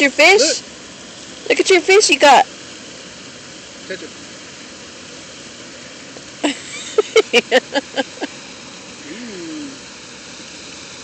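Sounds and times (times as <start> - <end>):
person making high-pitched vocal pulses: 9.1 - 9.8
sliding vocal sound: 9.1 - 9.8.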